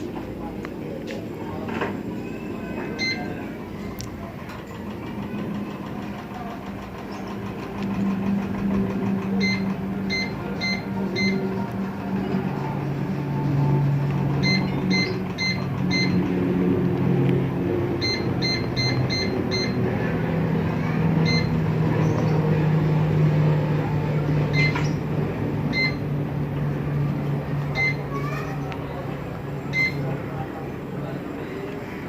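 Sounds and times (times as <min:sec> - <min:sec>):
air conditioner low hum: 0:00.0 - 0:32.0
air conditioner short high beeps: 0:02.2 - 0:03.9, 0:09.3 - 0:11.7, 0:14.3 - 0:16.3, 0:18.0 - 0:20.0, 0:20.8 - 0:21.6, 0:24.5 - 0:25.0, 0:25.7 - 0:26.1, 0:27.7 - 0:28.4, 0:29.7 - 0:30.2.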